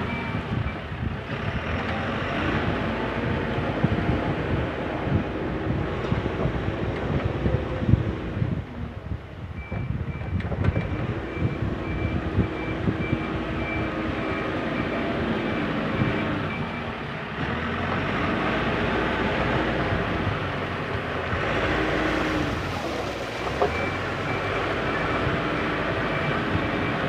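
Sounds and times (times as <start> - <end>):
reversing alarm beeps: 0.0 - 0.9, 9.6 - 16.9, 23.7 - 27.0
diesel engine running: 0.0 - 27.0
machine knocks and clanks: 9.7 - 11.0.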